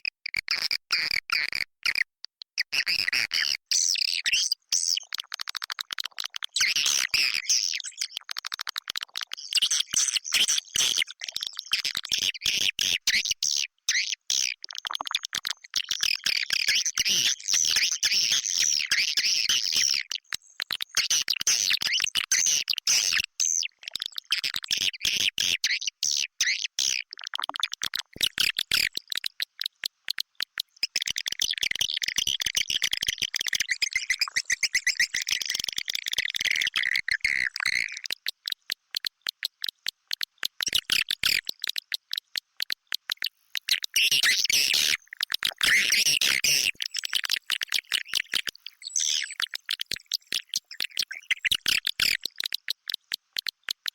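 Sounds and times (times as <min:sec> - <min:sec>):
sharp clicking: 0:38.0 - 0:48.6, 0:49.4 - 0:53.9.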